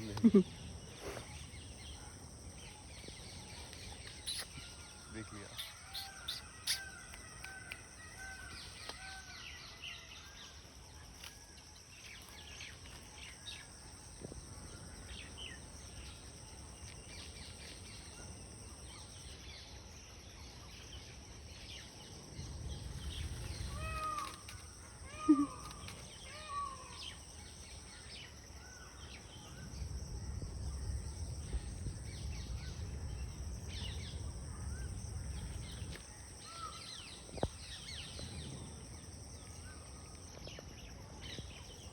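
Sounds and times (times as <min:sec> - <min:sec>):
birds calling: 0:00.0 - 0:09.2
high insect buzz: 0:03.4 - 0:09.0
wind rumble on microphone: 0:29.2 - 0:41.9.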